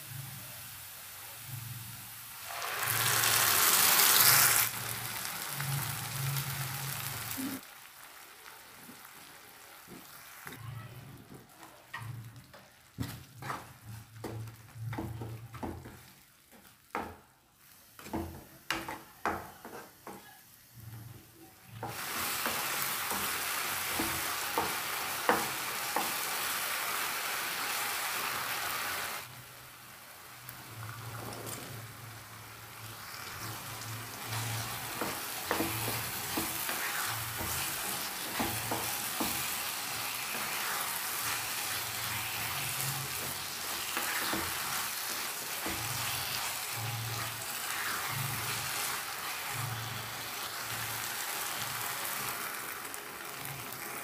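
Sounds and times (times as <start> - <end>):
food sizzling in oil: 0.0 - 54.0
spatula scraping pan: 13.0 - 16.6, 33.1 - 51.0.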